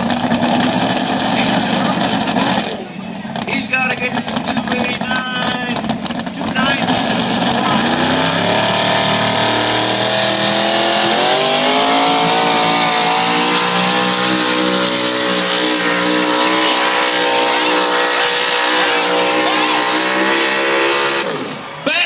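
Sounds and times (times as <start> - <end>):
truck engine at full throttle: 0.0 - 21.8.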